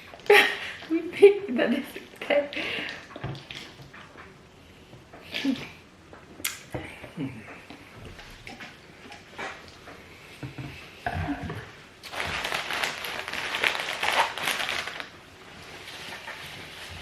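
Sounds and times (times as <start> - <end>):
crinkling rustling crackles: 11.5 - 17.0.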